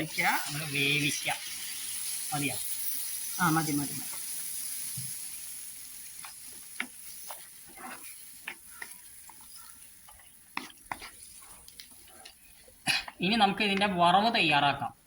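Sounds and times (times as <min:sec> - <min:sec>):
faint sizzle: 0:00.0 - 0:15.0
spoon scraping a pan: 0:06.1 - 0:12.8.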